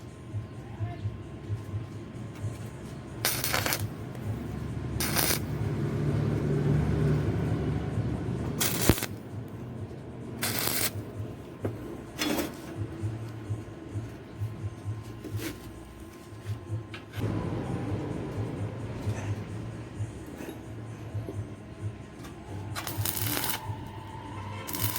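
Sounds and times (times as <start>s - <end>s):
arc welding crackling: 2.5s - 5.8s, 8.5s - 9.4s, 10.4s - 11.1s, 22.6s - 24.9s.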